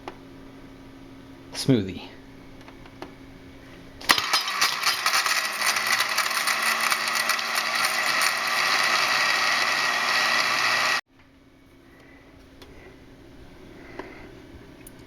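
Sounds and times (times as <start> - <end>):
blender motor chopping: 4.1 - 11.0.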